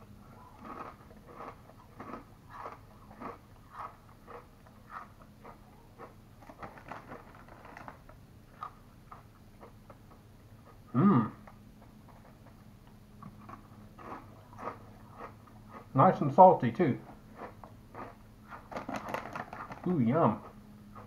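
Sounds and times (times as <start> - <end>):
man crunching potato chip: 0.3 - 8.8, 13.3 - 16.0, 17.3 - 21.0.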